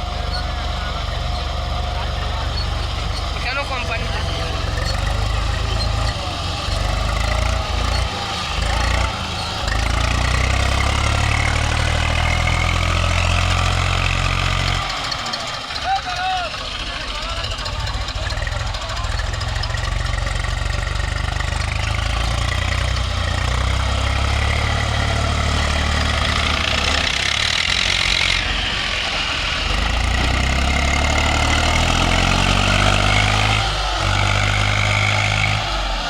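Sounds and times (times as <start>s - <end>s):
diesel tractor engine running: 0.0s - 36.0s.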